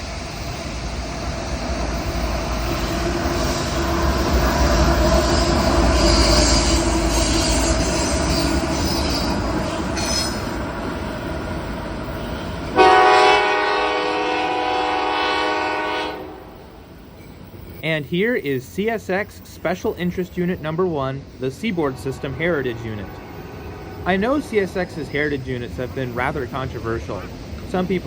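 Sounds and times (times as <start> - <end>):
train engine and wheels rumbling: 0.0 - 28.0
wheel squeal: 5.2 - 10.6
locomotive air horn: 12.8 - 16.5, 21.8 - 24.0.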